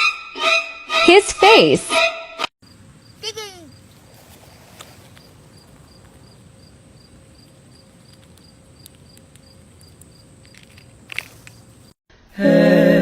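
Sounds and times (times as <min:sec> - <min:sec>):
cricket chirping: 0:02.6 - 0:12.0
rustle: 0:02.7 - 0:12.0.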